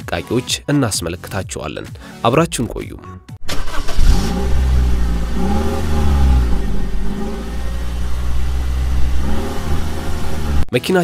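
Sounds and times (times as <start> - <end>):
car engine starting and idling: 3.4 - 10.7.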